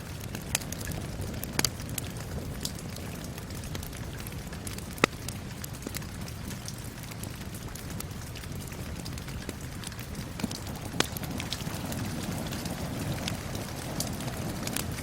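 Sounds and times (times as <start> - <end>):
steady rain hiss: 0.0 - 15.0
wood fire crackling and popping: 0.0 - 15.0.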